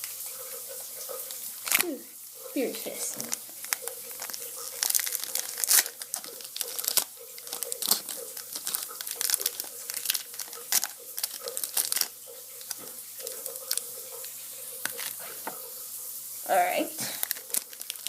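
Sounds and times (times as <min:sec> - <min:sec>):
foil wrapper tearing and crinkling: 0:01.6 - 0:02.0, 0:02.8 - 0:15.4, 0:17.0 - 0:18.0.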